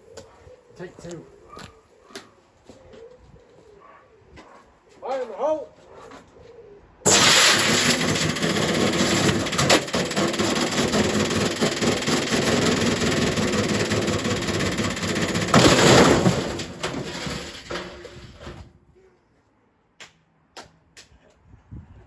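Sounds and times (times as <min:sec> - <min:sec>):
washing machine rushing and clattering: 0:07.1 - 0:18.6.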